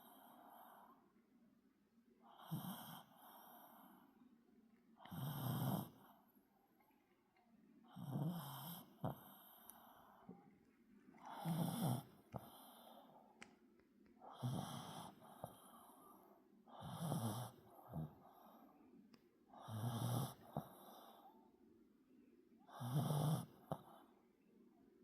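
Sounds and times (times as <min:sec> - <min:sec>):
dog snoring: 0:02.3 - 0:03.9, 0:05.0 - 0:06.2, 0:07.9 - 0:09.9, 0:11.3 - 0:13.0, 0:14.2 - 0:16.0, 0:16.7 - 0:18.6, 0:19.6 - 0:21.2, 0:22.7 - 0:24.0.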